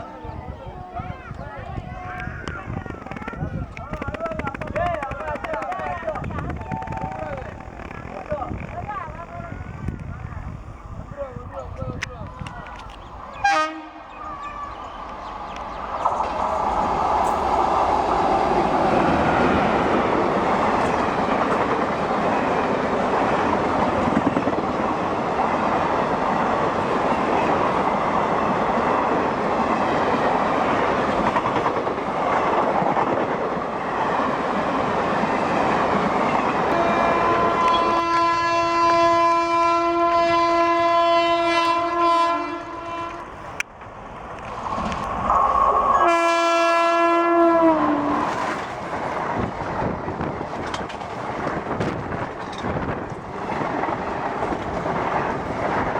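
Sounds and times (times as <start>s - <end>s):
train wheels clattering on rail: 1.2s - 10.1s, 14.2s - 38.9s, 48.1s - 55.9s
train horn blast: 13.3s - 14.3s, 36.6s - 43.4s, 45.9s - 48.5s.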